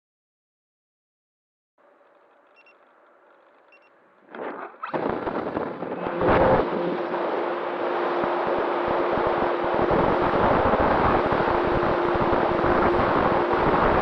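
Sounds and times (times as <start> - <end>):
faint hum: 1.8 - 14.0
steady tone: 3.4 - 14.0
air rushing over microphone: 4.3 - 14.0.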